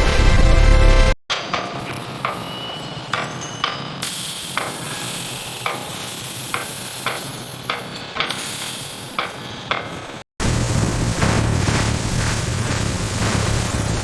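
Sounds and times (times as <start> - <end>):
machine sizzling hiss: 1.8 - 14.0
sharp machine clicks: 4.0 - 9.8.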